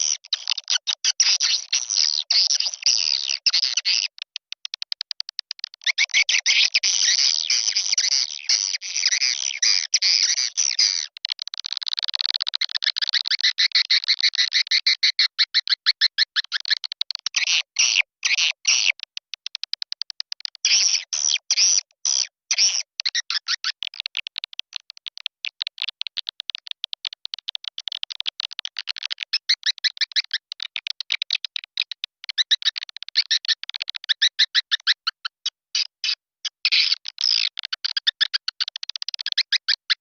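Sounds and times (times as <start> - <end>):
swiftlets twittering and clicking: 0.0 - 17.4.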